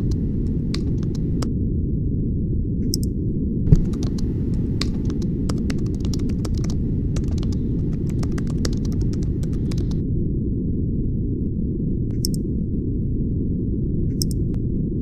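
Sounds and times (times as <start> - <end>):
keyboard keystroke clicks: 0.0 - 1.5, 3.7 - 10.0, 12.1 - 12.4, 14.2 - 14.5
steady low rumble: 0.0 - 15.0.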